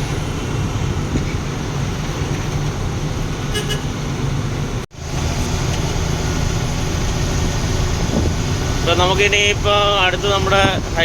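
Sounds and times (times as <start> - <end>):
truck engine rumble: 0.0 - 11.0
truck horn toots: 3.5 - 4.0.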